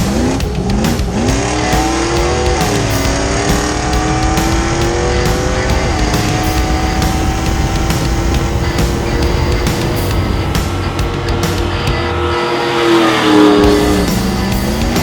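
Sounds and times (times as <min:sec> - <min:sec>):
background music: 0:00.0 - 0:15.0
car engine accelerating: 0:00.0 - 0:15.0.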